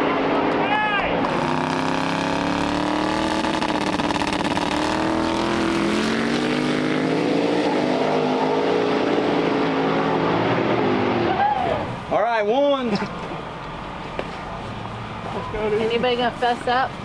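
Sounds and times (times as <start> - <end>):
car engine accelerating: 0.0 - 11.5.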